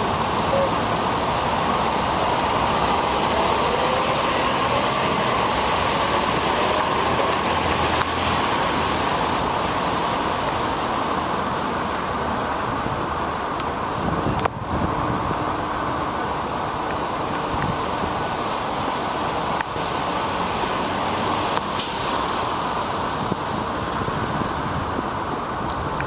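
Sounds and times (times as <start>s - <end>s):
road traffic rushing: 0.0s - 26.0s
tyres on wet pavement: 0.0s - 26.0s.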